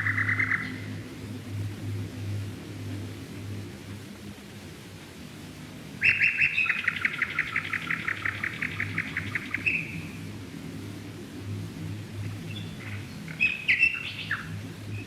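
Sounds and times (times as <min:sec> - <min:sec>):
songbird trilling: 0:00.0 - 0:00.9, 0:06.0 - 0:10.2, 0:12.5 - 0:15.0
low hum: 0:00.0 - 0:06.0, 0:06.8 - 0:15.0.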